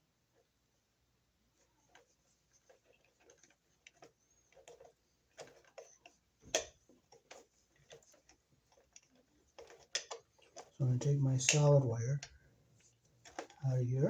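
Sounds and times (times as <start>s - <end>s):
small clicks of wires handled: 2.7s - 13.6s.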